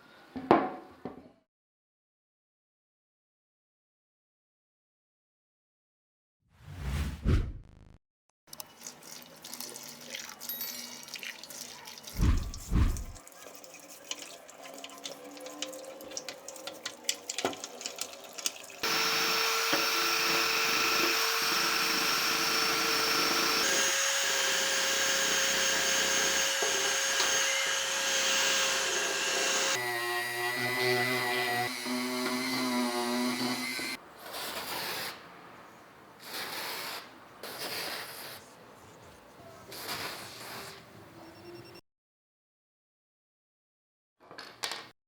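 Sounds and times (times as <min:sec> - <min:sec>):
heavy thump: 0:12.2 - 0:13.2
small electric tool whining: 0:18.8 - 0:34.0.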